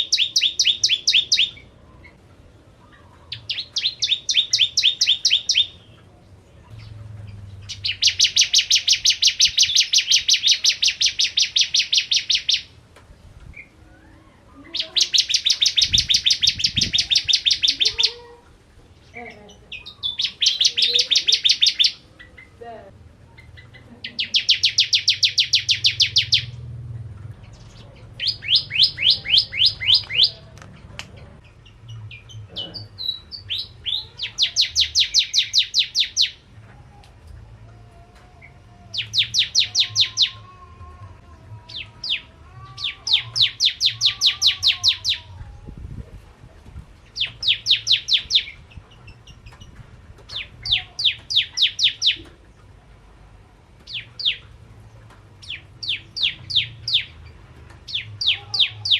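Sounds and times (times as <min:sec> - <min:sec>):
bird sharp chirps: 0:03.3 - 0:06.0, 0:23.4 - 0:26.6, 0:27.6 - 0:30.4.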